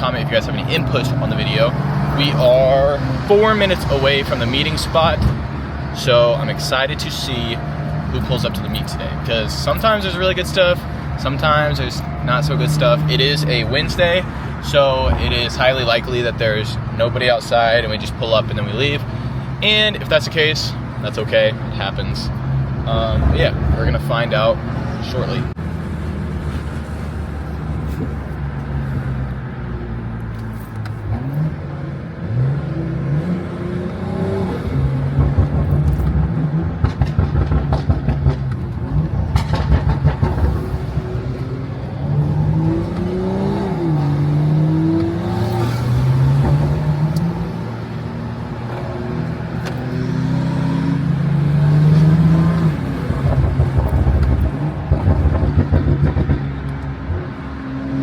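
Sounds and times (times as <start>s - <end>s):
car engine revving: 0.0s - 17.2s, 17.8s - 58.0s
exhaust crackling: 29.9s - 58.0s.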